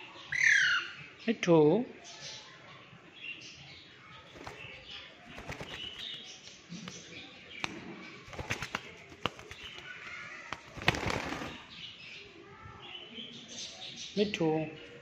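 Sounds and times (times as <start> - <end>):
parakeet knocks and clicks: 5.3 - 11.6.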